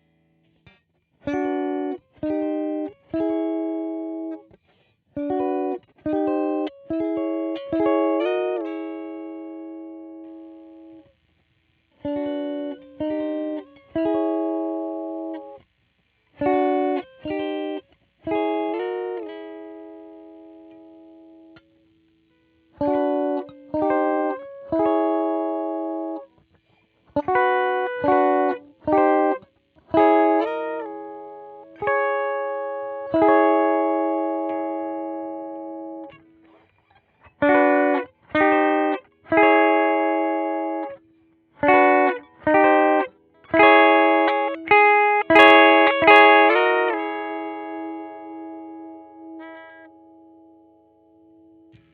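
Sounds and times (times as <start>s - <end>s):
electric guitar chords: 0.0s - 15.7s, 16.3s - 51.9s.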